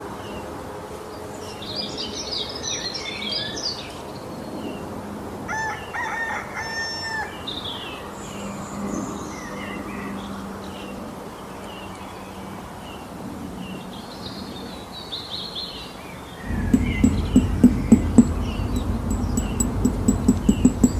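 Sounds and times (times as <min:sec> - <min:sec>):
small birds chirping: 0:16.4 - 0:20.9.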